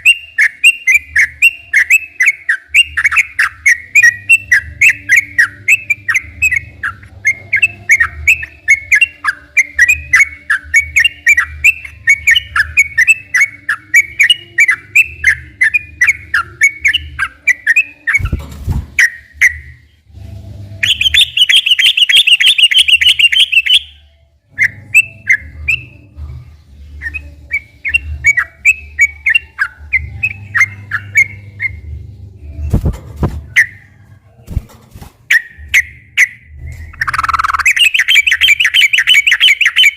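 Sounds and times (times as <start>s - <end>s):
bird chirping: 0.0s - 20.0s, 20.8s - 39.9s
low steady hum: 23.9s - 37.7s.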